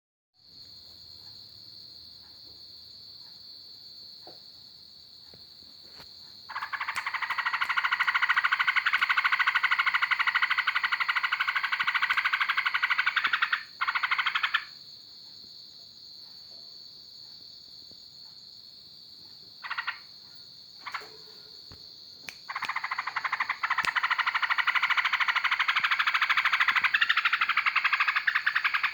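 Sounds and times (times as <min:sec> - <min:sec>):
songbird rattling trills: 0:06.5 - 0:14.7, 0:19.6 - 0:20.0, 0:22.5 - 0:28.9.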